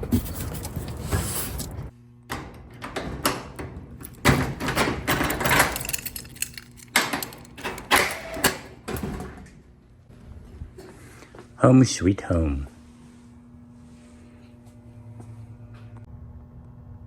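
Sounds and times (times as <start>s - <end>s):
objects knocking and clattering: 0.0s - 7.8s.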